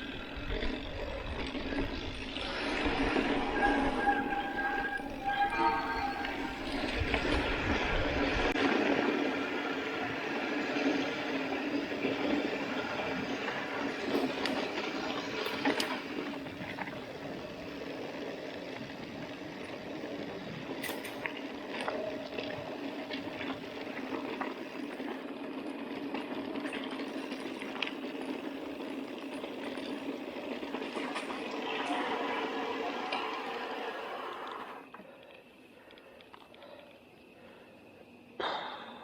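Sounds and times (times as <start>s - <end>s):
bike clicks and rattles: 0.0s - 32.4s
bike tyres on dirt: 0.0s - 38.3s.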